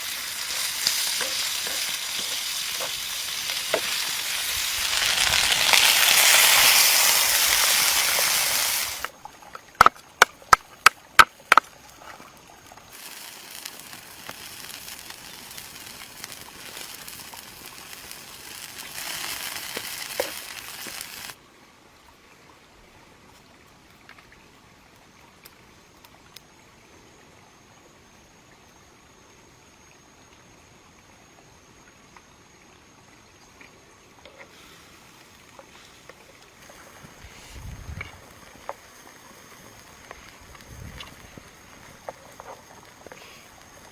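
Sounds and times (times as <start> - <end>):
food sizzling: 0.0 - 9.2, 9.8 - 21.4, 36.6 - 43.9
soft hiss: 0.0 - 9.7, 11.4 - 43.9.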